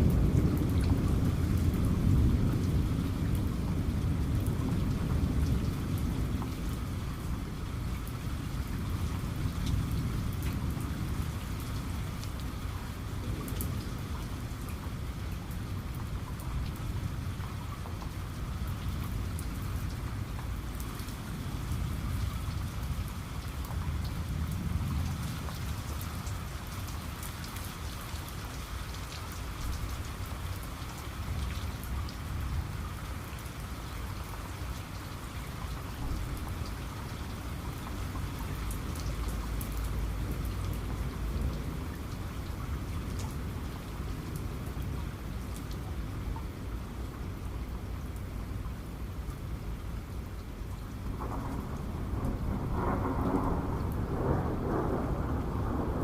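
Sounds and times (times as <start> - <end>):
distant thunder rumble: 0.0 - 16.0, 51.0 - 56.0
heavy rain: 0.0 - 56.0.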